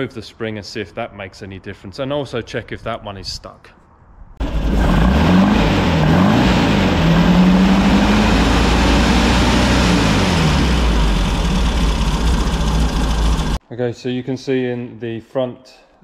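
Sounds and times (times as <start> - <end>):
car engine revving and idling: 4.4 - 13.6.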